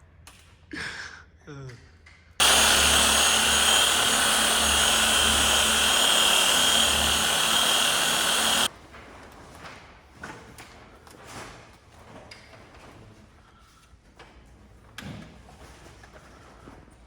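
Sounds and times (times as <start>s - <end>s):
power tool whining: 2.4s - 8.7s.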